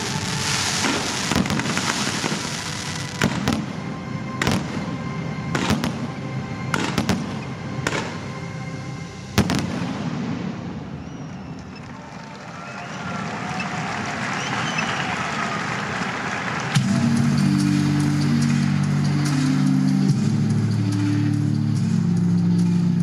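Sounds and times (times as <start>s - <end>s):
fireworks bangs: 0.0s - 3.8s, 9.4s - 16.9s
fireworks crackling: 0.0s - 4.9s, 9.3s - 20.3s
faint music: 0.0s - 23.0s.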